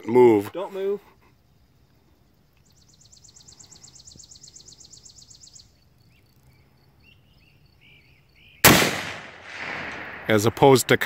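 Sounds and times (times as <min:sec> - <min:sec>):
faint high chirps: 0:01.0 - 0:08.6.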